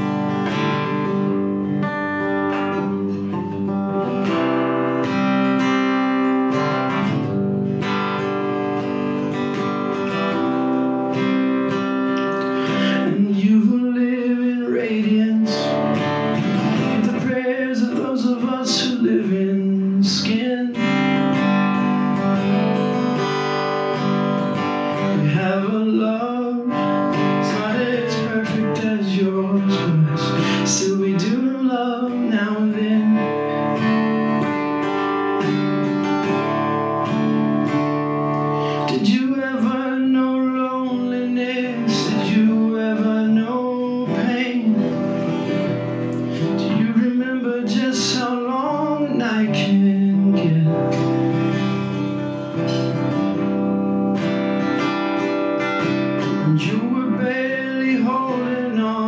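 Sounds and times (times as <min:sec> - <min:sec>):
strummed acoustic guitar: 0:00.0 - 0:59.0
person singing: 0:08.2 - 0:34.5, 0:36.0 - 0:53.5, 0:55.8 - 0:59.0.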